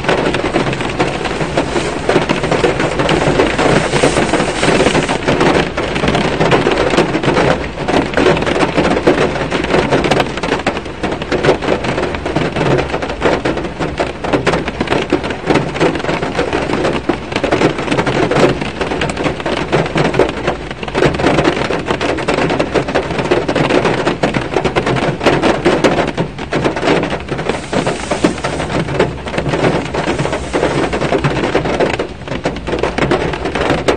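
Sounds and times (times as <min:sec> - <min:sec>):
heavy rain on a car: 0:00.0 - 0:33.9.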